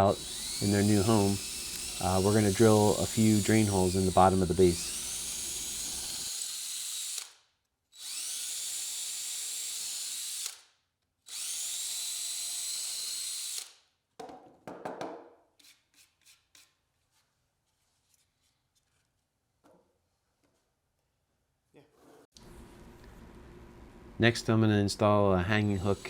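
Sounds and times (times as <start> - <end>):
power drill boring through wood: 0.0 - 10.6, 11.3 - 13.8, 25.6 - 26.0.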